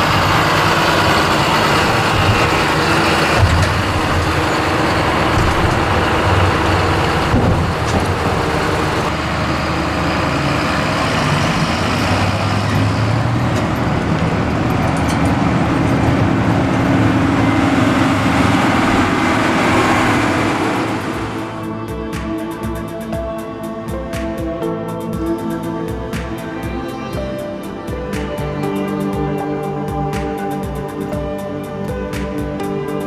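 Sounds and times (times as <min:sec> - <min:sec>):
diesel farm machinery running: 0:00.0 - 0:21.9.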